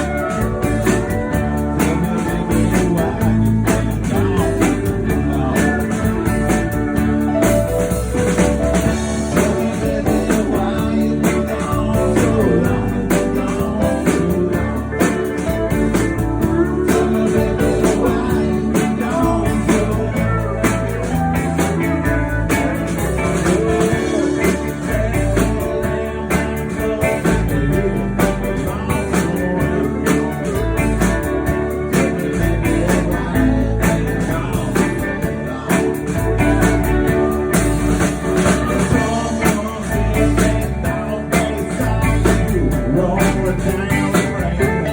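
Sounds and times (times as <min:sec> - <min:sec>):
live band playing blues-country: 0:00.0 - 0:44.9
person singing: 0:00.0 - 0:44.9.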